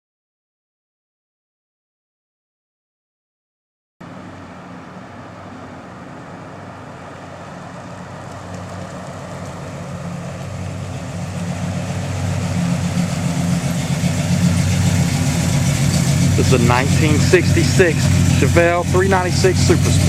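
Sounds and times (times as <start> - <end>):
car engine idling: 4.0 - 20.0.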